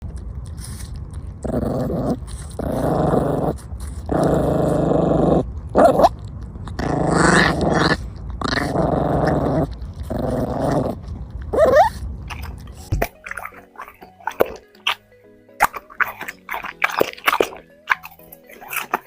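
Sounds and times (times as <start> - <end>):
dog growling: 0.6 - 15.0, 15.6 - 19.0
dog whining: 8.5 - 15.0.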